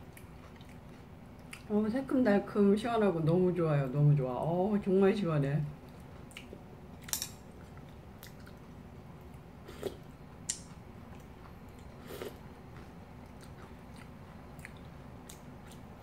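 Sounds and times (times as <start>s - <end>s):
soft chewing: 0.0s - 1.9s, 5.7s - 16.0s.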